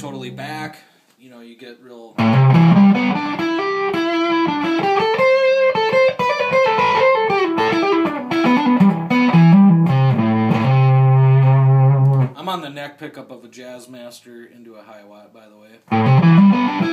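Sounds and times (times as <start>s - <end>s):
fuzzy electric guitar riff: 0.0s - 0.6s, 2.2s - 12.4s, 15.9s - 16.9s.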